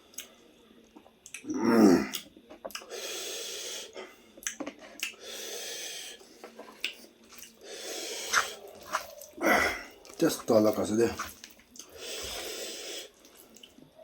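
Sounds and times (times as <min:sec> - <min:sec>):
long airy breaths: 0:05.2 - 0:06.3, 0:11.9 - 0:13.2
wet mouth clicks chewing: 0:08.2 - 0:09.4.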